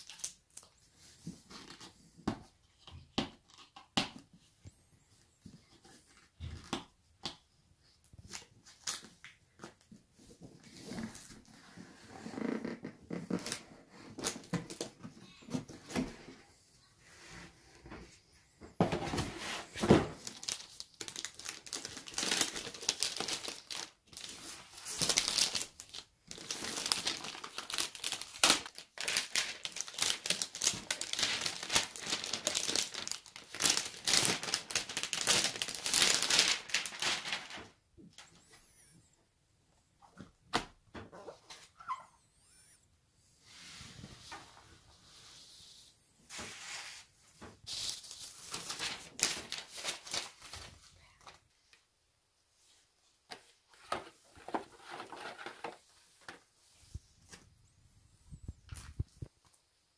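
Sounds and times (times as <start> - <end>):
packaging crinkling and rustling: 19.1 - 38.3, 47.7 - 51.4, 53.3 - 56.5.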